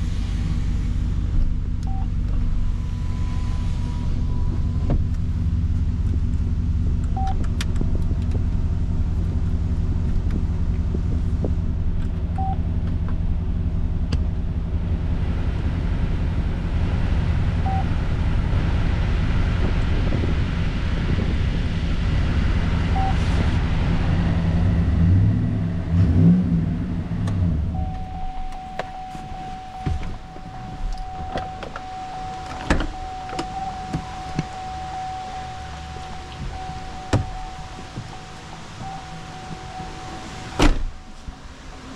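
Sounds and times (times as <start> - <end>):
truck engine idling and revving: 0.0 - 41.9
short high beep: 27.8 - 37.8.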